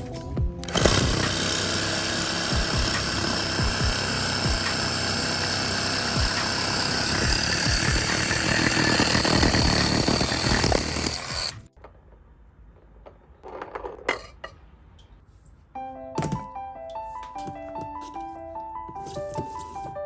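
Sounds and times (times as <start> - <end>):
saw cutting firewood: 0.6 - 11.7.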